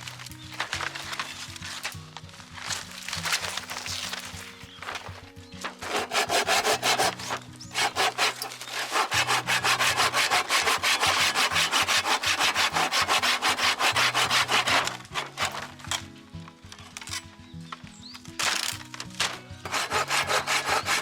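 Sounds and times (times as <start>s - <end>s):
hand saw cutting wood: 3.1s - 16.0s, 19.2s - 21.0s.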